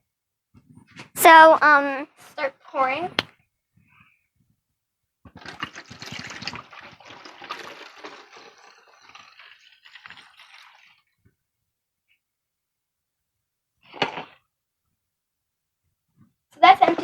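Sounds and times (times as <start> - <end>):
liquid pouring through a funnel: 5.3 - 11.4.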